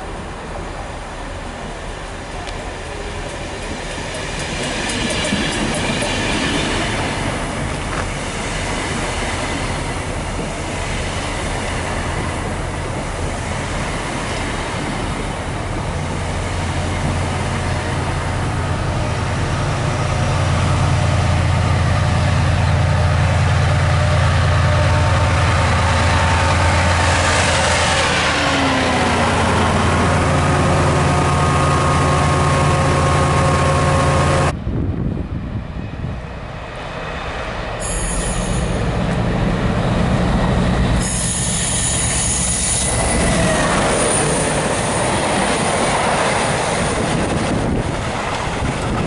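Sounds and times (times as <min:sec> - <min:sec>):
diesel locomotive engine drone: 0:00.0 - 0:49.0
train wheel and rail noise: 0:00.0 - 0:49.0
thin high squeal: 0:37.8 - 0:38.8, 0:41.0 - 0:43.2.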